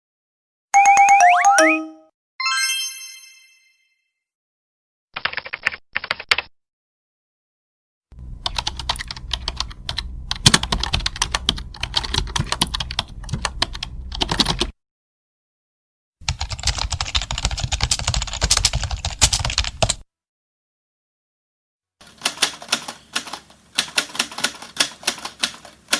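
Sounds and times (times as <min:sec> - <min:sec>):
keyboard typing clicks: 0:08.4 - 0:14.7.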